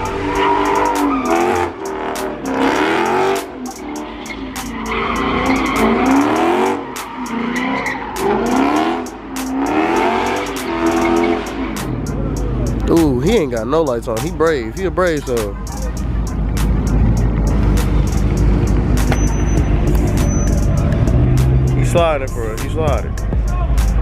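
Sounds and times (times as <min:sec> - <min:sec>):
tyres squealing: 0:00.0 - 0:02.8, 0:03.4 - 0:08.8
car engine revving hard: 0:00.0 - 0:12.9, 0:16.0 - 0:23.0.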